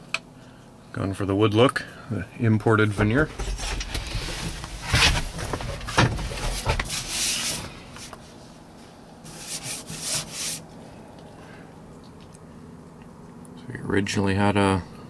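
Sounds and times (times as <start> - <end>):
scuffing and rubbing noises: 2.9 - 10.6.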